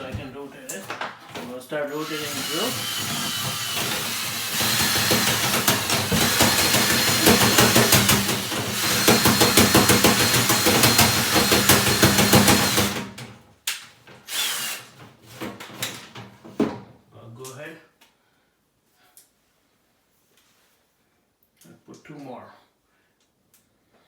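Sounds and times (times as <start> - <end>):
drill motor whine: 1.9 - 13.0, 14.3 - 14.8.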